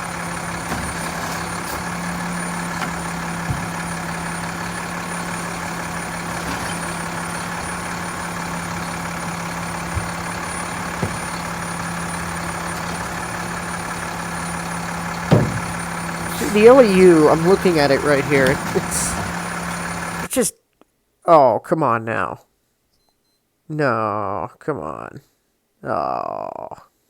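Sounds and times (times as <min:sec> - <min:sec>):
truck diesel engine idling: 0:00.0 - 0:20.3
light knocks: 0:15.3 - 0:16.0.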